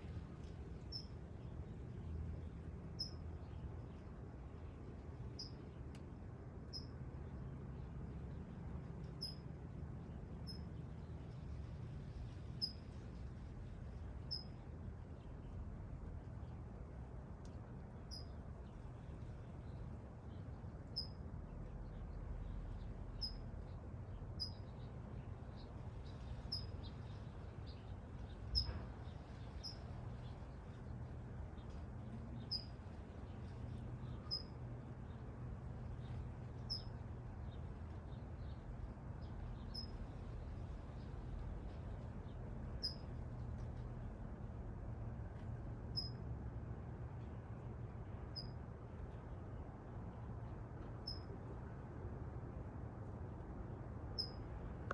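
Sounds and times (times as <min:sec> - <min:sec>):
low background rumble: 0:00.0 - 0:54.9
small bird chirping: 0:00.4 - 0:01.8, 0:02.4 - 0:04.0, 0:05.3 - 0:05.8, 0:06.7 - 0:07.9, 0:09.0 - 0:09.5, 0:10.1 - 0:11.6, 0:12.3 - 0:13.1, 0:14.2 - 0:14.6, 0:18.0 - 0:18.8, 0:19.6 - 0:35.3, 0:35.9 - 0:43.2, 0:45.9 - 0:46.2, 0:48.3 - 0:48.6, 0:51.0 - 0:51.4, 0:54.1 - 0:54.6.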